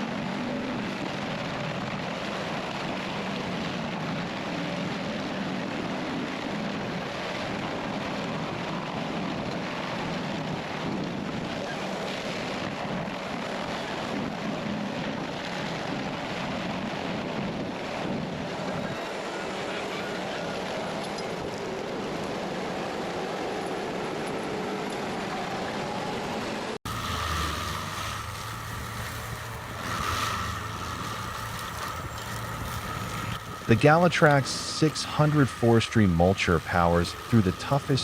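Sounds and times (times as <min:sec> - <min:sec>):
machine engine hum and whine: 0:00.0 - 0:38.0
heavy machinery rumbling: 0:26.9 - 0:38.0.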